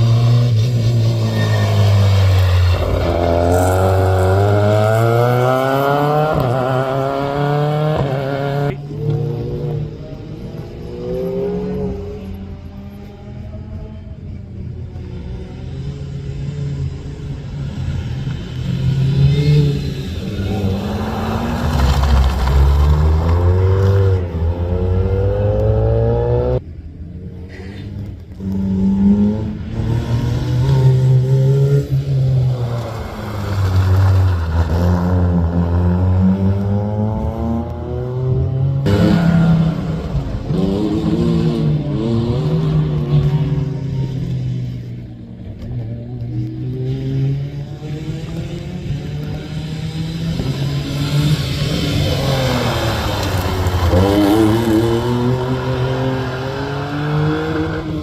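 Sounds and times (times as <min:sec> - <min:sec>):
rally car engine accelerating: 0:00.0 - 0:14.3, 0:27.8 - 0:58.0.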